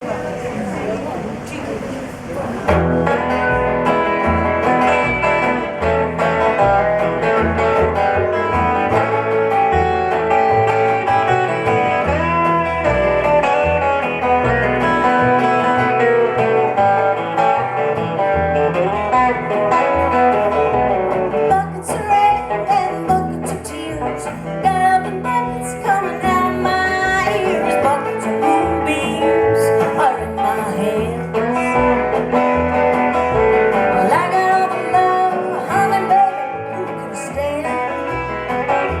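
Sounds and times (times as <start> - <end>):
acoustic guitar playing: 0.0 - 39.0
person singing: 21.4 - 32.0, 33.7 - 38.5.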